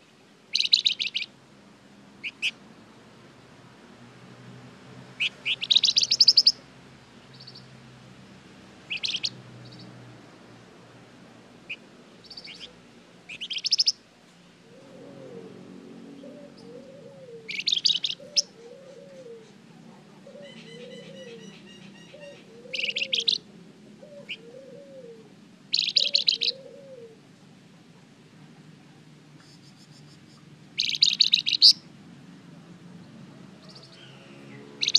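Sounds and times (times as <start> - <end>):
soft low arched bird call: 0.5 - 1.4, 5.2 - 6.6, 8.9 - 9.9, 11.7 - 14.0, 14.6 - 27.2, 29.4 - 31.9, 33.6 - 34.9
songbird singing rapid high trills: 0.5 - 1.4, 5.2 - 6.6, 7.3 - 7.7, 8.9 - 9.9, 11.7 - 14.0, 17.5 - 18.6, 20.5 - 23.4, 25.7 - 26.6, 29.4 - 31.9, 33.6 - 34.9.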